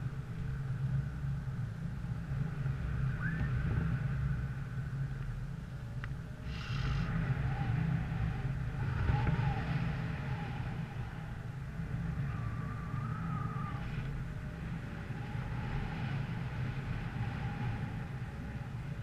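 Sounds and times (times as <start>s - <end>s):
vehicle engine rumble: 0.0s - 19.0s
wind on microphone: 0.0s - 19.0s.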